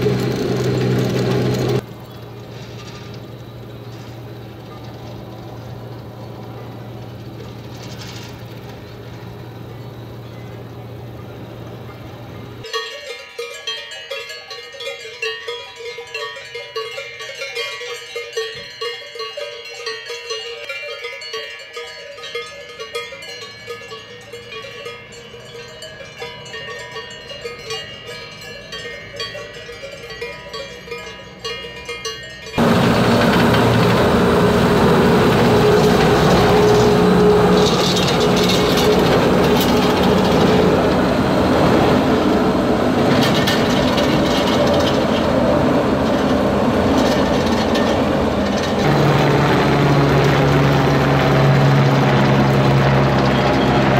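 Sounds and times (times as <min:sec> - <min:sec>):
electric locomotive running: 0:00.0 - 0:12.7, 0:32.2 - 0:53.9
cowbells jangling: 0:12.6 - 0:32.7.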